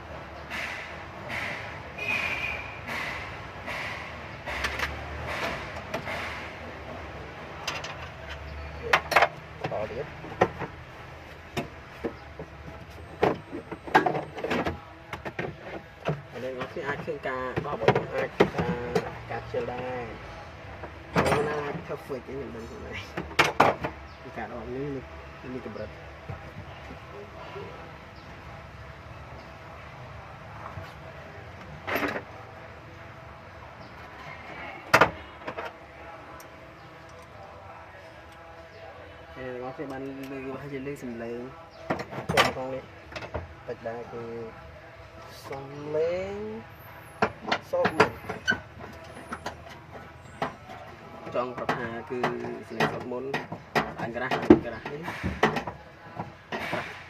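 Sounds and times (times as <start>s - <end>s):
tools and hard parts clicking: 7.6s - 9.4s.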